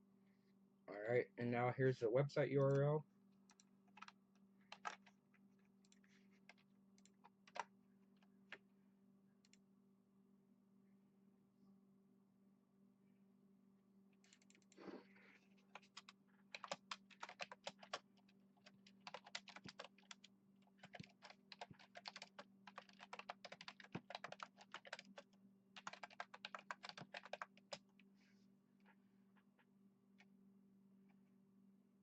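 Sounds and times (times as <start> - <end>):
faint steady hum: 0.0 - 32.0
typing on a computer keyboard: 3.5 - 5.1, 5.8 - 7.7, 15.7 - 27.9.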